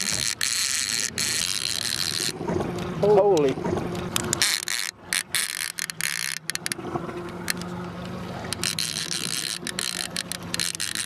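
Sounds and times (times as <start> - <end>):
fishing reel clicking: 0.0 - 2.4, 4.2 - 6.8, 8.5 - 11.0
boat motor humming: 0.0 - 11.0.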